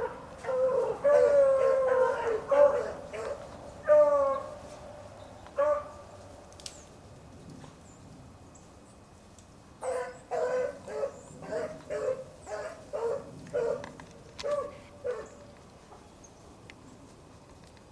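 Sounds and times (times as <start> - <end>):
hunting dogs baying: 0.0 - 4.5, 9.8 - 15.4.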